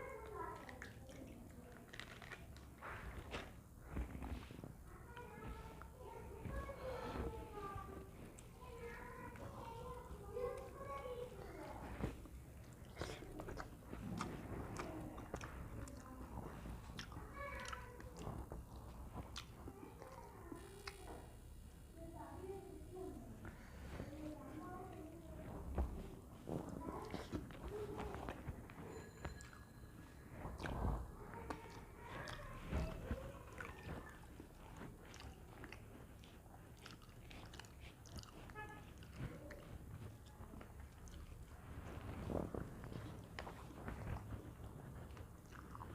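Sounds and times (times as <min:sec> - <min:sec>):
person chewing food: 0:00.3 - 0:04.7, 0:11.8 - 0:21.9, 0:25.5 - 0:29.7, 0:30.4 - 0:45.9.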